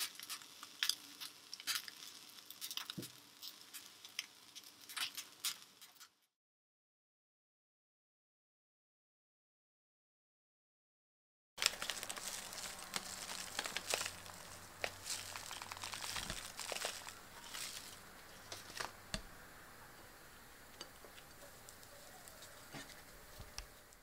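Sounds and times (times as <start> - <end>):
salad leaves crinkling: 0.0 - 6.0, 11.6 - 19.5, 20.7 - 24.0.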